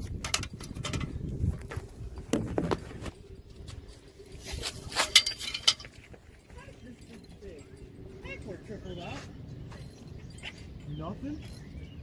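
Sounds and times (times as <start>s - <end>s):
microphone handling noise: 1.0s - 3.1s.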